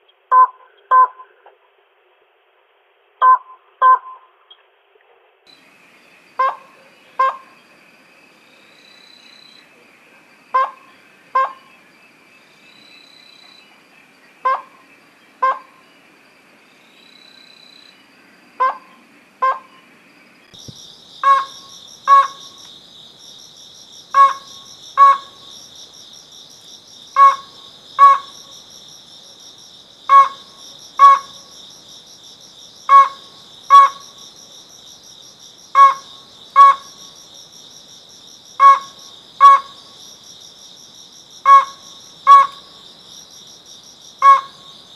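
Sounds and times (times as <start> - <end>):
insects humming: 5.5 - 44.9
bird calling sharp double notes: 44.2 - 44.6.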